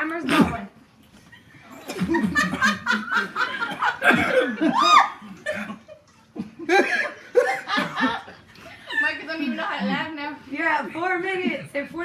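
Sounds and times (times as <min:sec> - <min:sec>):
people laughing: 0:01.4 - 0:09.9.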